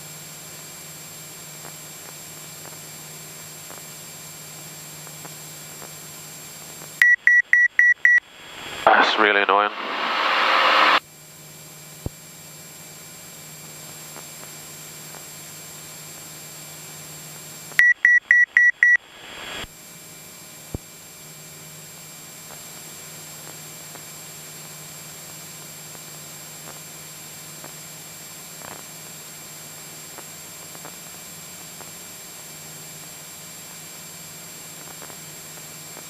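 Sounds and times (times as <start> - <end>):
muffled light aircraft cockpit drone: 0.0 - 7.0, 8.0 - 17.8, 19.0 - 36.0
rapid high beeps: 7.0 - 8.2, 17.8 - 19.0.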